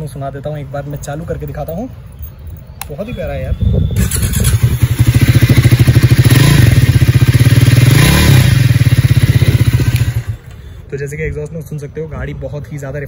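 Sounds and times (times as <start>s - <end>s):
motorcycle engine idling: 4.0s - 10.5s.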